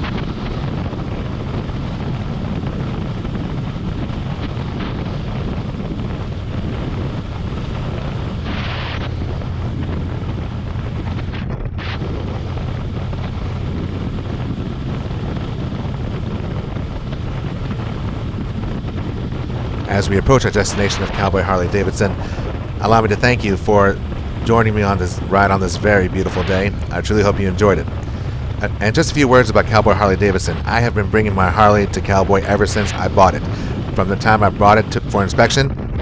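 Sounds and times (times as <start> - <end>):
wind rushing over microphone: 0.0 - 36.0
motorcycle engine running: 19.4 - 35.0.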